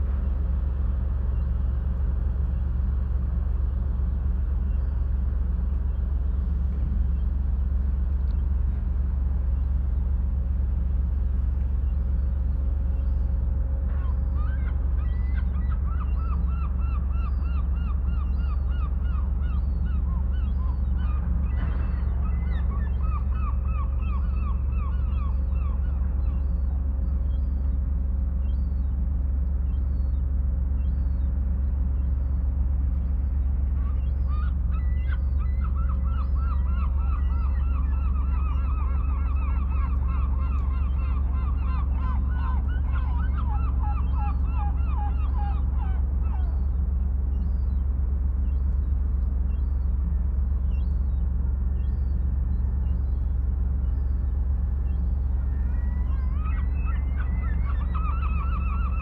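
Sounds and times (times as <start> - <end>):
low rumble of the sea: 0.0 - 59.0
rapid repeated bird calls: 33.3 - 59.0.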